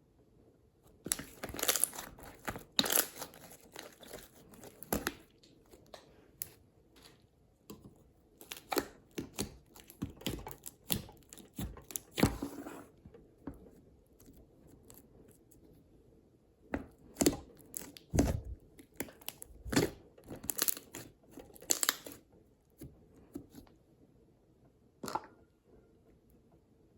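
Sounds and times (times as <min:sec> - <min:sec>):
slime popping and crackling: 0:01.1 - 0:05.5, 0:08.4 - 0:12.2, 0:17.1 - 0:22.2.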